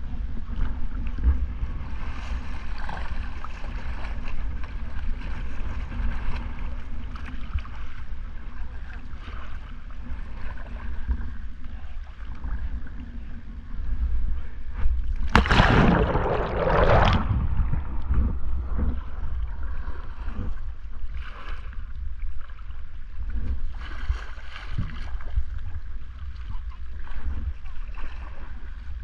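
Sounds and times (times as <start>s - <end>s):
water splashing around kayak: 0.0s - 29.0s
wind on microphone: 10.3s - 22.2s.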